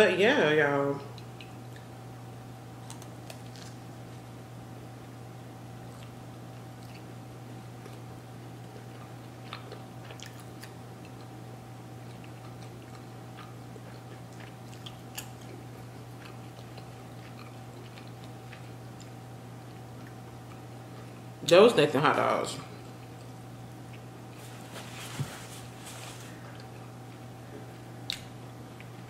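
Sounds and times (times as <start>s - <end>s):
person chewing: 2.8s - 3.8s, 5.8s - 21.2s, 26.4s - 29.0s.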